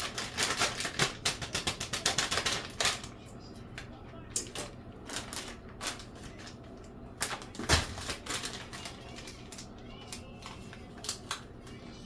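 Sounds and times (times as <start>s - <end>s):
kitchen clicks and taps: 0.0s - 3.1s.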